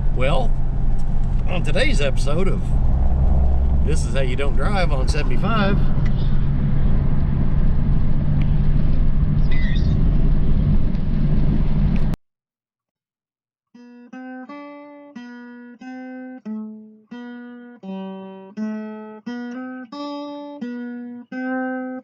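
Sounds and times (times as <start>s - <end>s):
vehicle road noise: 0.0s - 12.2s
acoustic guitar picked notes: 13.8s - 22.0s.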